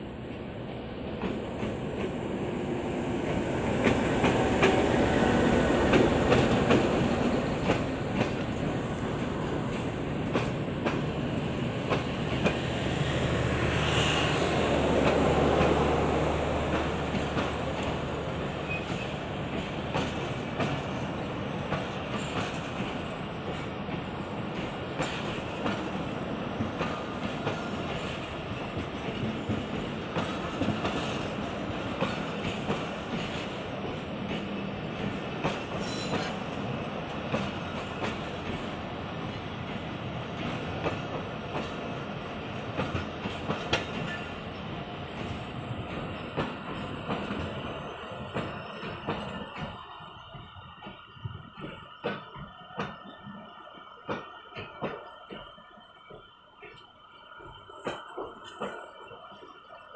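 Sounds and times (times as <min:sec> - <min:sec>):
diesel locomotive running past: 0:00.0 - 0:59.9
train coaches rumbling: 0:00.0 - 0:59.9
wheels clicking over rail joints: 0:03.2 - 0:09.0.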